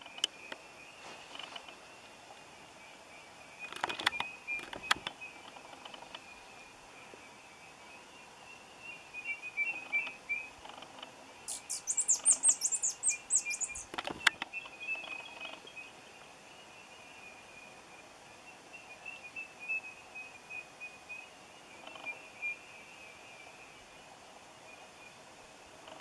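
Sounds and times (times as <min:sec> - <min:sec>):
bird calling high down-slurred notes: 0:11.5 - 0:13.9.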